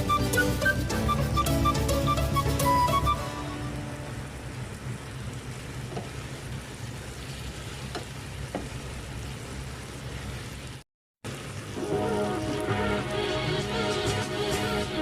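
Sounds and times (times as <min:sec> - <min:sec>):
chicken sizzling in a pan: 0:03.6 - 0:15.0.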